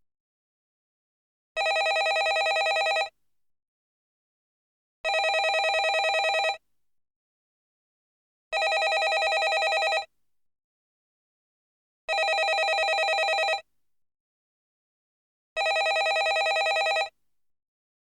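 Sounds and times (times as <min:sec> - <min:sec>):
landline telephone ringing: 0:01.6 - 0:03.1, 0:05.1 - 0:06.6, 0:08.6 - 0:10.1, 0:12.1 - 0:13.6, 0:15.6 - 0:17.1.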